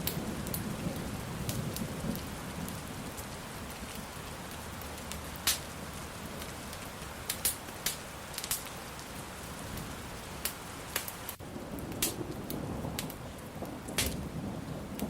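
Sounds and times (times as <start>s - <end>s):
thunder rumbling: 0.0s - 6.7s, 11.3s - 15.0s
steady rain: 0.0s - 15.0s
wood fire crackling: 0.0s - 15.0s.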